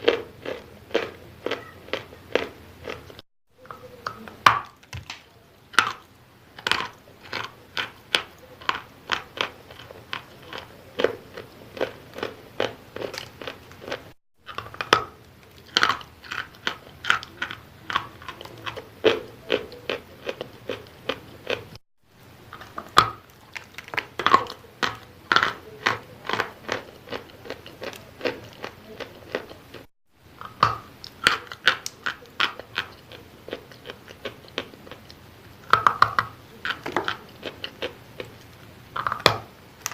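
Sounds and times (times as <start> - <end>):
chalk being chewed: 31.0 - 38.7.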